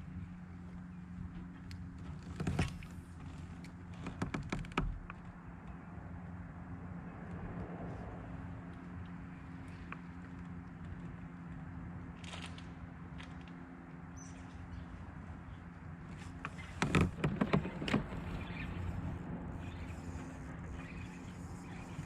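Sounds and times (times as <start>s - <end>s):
gear knocking against kayak: 1.2s - 5.4s, 16.0s - 19.0s
steady low hum: 5.0s - 22.0s.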